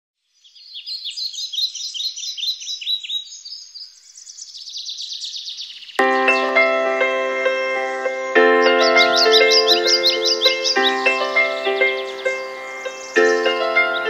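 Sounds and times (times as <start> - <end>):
birds chirping: 0.4 - 14.0
music with chiming mallet notes: 6.0 - 14.0.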